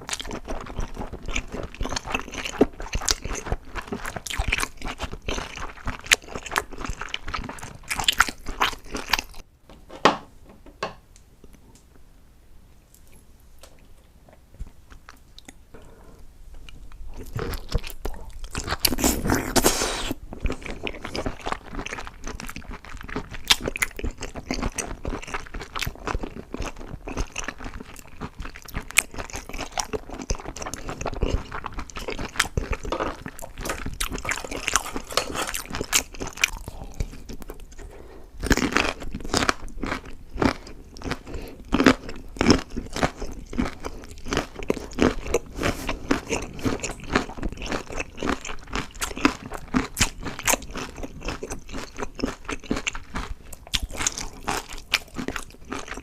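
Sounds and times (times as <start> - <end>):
crackly chewing: 0.0 - 9.4, 12.9 - 56.0
loud crunching bite: 17.2 - 56.0.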